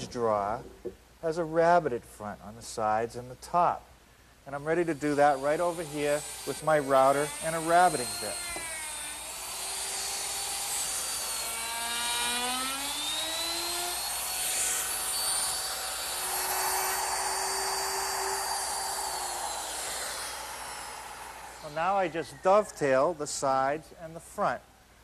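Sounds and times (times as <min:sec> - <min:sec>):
electric router cutting wood: 0:04.8 - 0:23.1.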